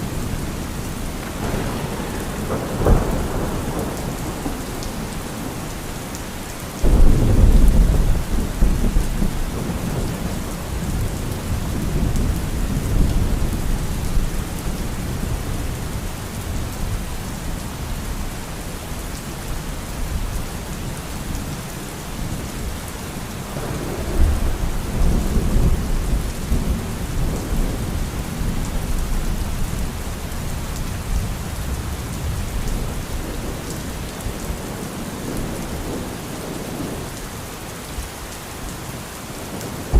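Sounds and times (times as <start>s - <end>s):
steady rain: 0.0s - 39.9s
thunder rolling: 1.2s - 5.6s, 6.8s - 14.3s.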